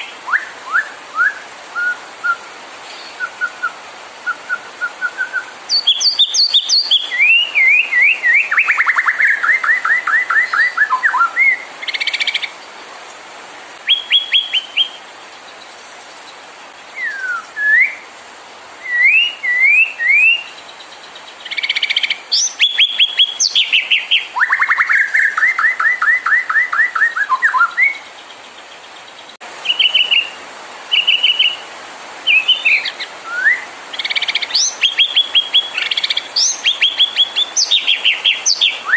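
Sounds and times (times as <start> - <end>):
bird singing whistled phrases: 0.0 - 12.4, 13.9 - 15.0, 17.0 - 18.0, 18.8 - 20.6, 21.5 - 28.1, 29.6 - 31.6, 32.3 - 38.9
steady hiss: 0.0 - 38.9.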